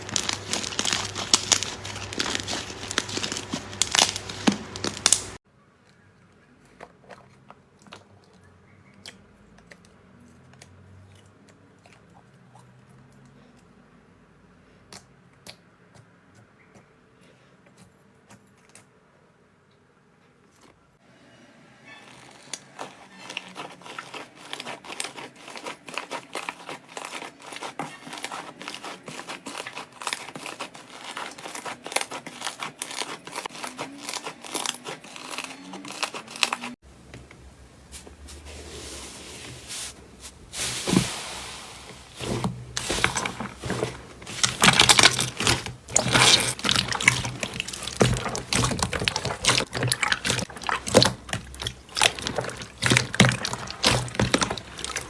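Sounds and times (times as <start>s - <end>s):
slime squeezed by hand crackling: 0.0s - 5.4s, 39.7s - 55.0s.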